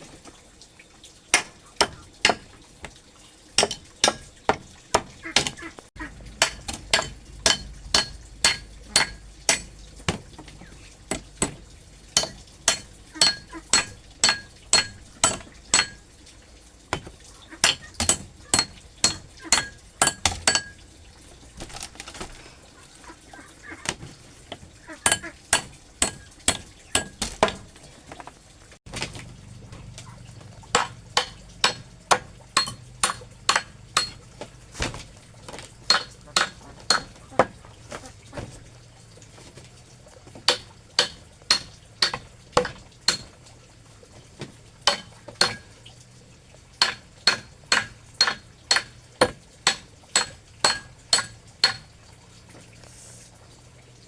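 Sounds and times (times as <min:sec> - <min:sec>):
low steady hum: 0:00.0 - 0:54.0
metal blade chopping: 0:01.4 - 0:03.0, 0:03.6 - 0:05.6, 0:06.3 - 0:10.4, 0:11.1 - 0:16.0, 0:16.9 - 0:20.8, 0:25.0 - 0:27.6, 0:30.7 - 0:37.6, 0:40.5 - 0:43.3, 0:44.8 - 0:45.7, 0:46.8 - 0:51.8.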